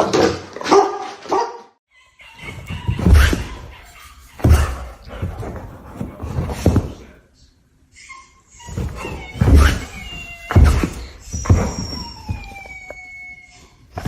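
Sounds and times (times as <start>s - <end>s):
dog barking: 0.6s - 1.7s.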